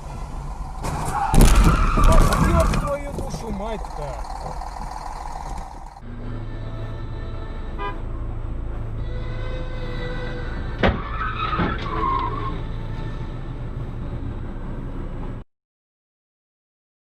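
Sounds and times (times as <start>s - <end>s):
vehicle crash: 0.0s - 6.0s, 10.7s - 12.6s
car engine and road noise: 0.0s - 15.5s.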